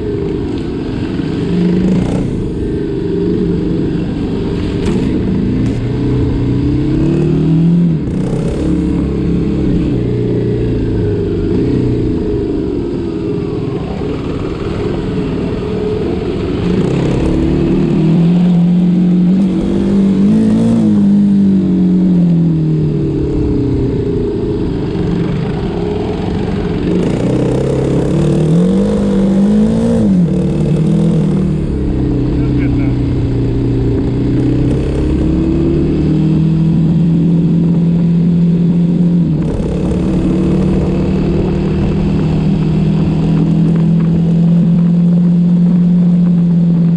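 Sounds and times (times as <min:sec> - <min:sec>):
motorbike engine revving: 0:00.0 - 0:46.9.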